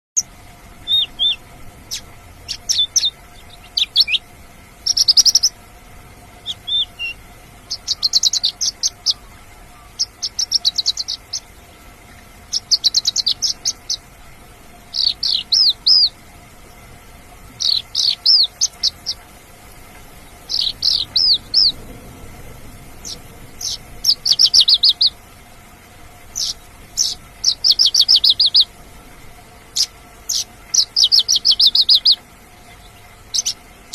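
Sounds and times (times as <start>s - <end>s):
bush lark chirping trills: 0.2s - 5.6s, 6.4s - 11.6s, 12.4s - 14.1s, 14.9s - 16.2s, 17.6s - 21.9s, 22.9s - 25.2s, 26.2s - 28.8s, 29.7s - 33.9s.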